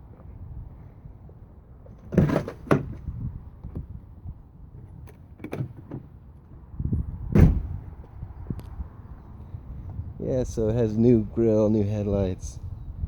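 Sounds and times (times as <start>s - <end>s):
truck door handle and latch clunks: 5.0s - 6.1s, 7.3s - 7.7s.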